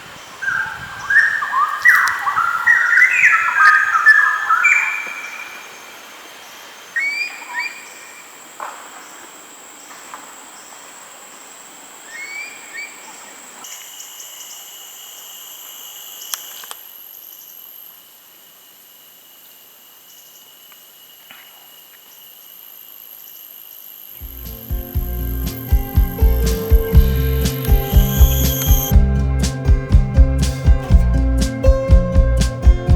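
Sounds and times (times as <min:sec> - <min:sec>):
high-pitched insect drone: 0:13.6 - 0:29.0
sharp click: 0:25.4 - 0:28.9.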